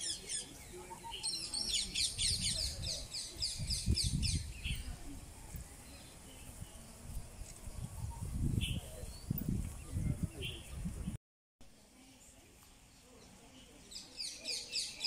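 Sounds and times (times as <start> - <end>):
birds chirping: 0.0 - 11.2
low rumble on the microphone: 2.2 - 11.2.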